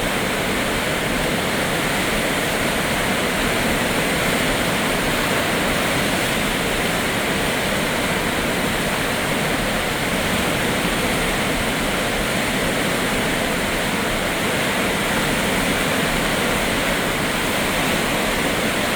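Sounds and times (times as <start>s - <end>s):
floodwater rushing roar: 0.0s - 18.9s.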